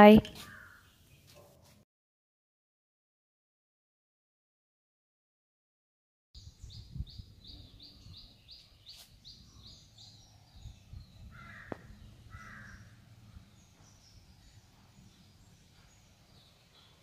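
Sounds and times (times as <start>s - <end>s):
harsh bird calls: 0.3s - 1.1s, 7.2s - 14.5s
bird chirping: 6.4s - 17.0s.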